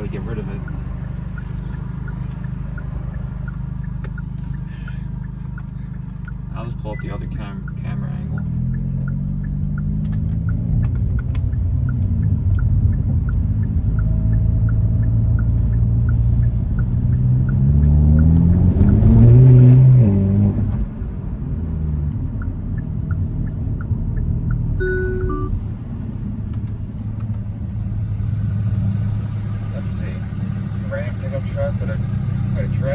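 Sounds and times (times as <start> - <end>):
light ticking: 0.0 - 20.0, 22.1 - 25.3
car engine accelerating: 0.0 - 32.9
road rumble: 0.0 - 32.9.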